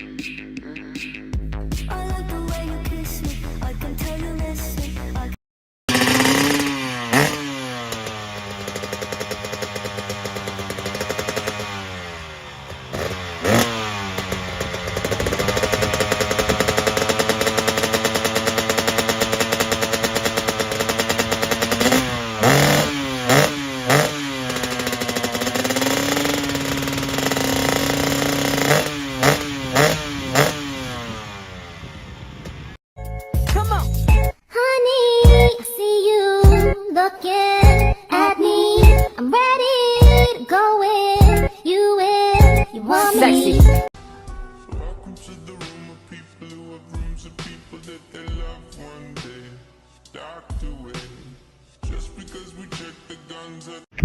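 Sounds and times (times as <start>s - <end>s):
motocross bike engine revving: 5.9s - 32.8s, 40.0s - 40.3s, 41.2s - 41.5s, 42.4s - 43.9s.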